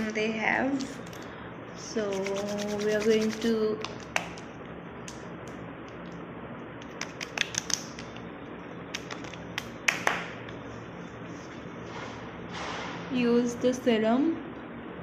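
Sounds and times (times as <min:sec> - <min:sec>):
clicks and taps of a packet: 0:06.8 - 0:08.2.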